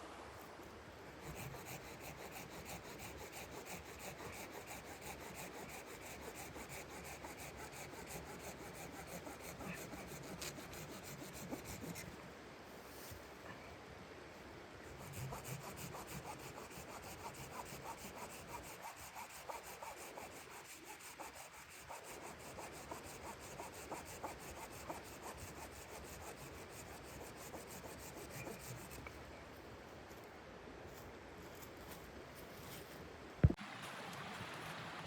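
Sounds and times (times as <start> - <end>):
saw cutting wood: 1.2 - 12.1, 15.0 - 29.0.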